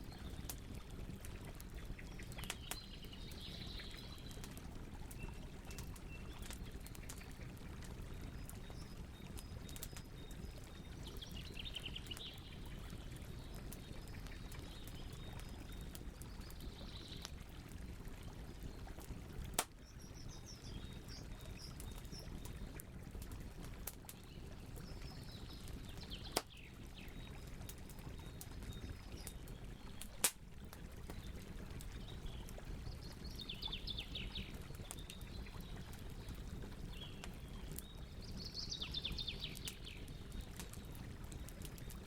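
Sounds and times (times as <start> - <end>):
campfire crackling: 0.0 - 42.0
sharp pops of fire: 30.0 - 30.4.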